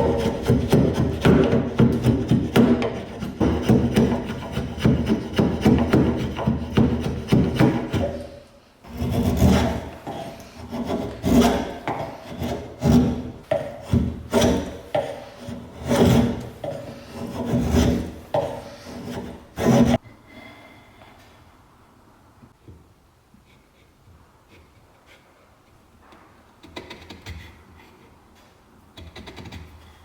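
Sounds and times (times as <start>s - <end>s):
hand tool rasping on workpiece: 0.0s - 20.0s.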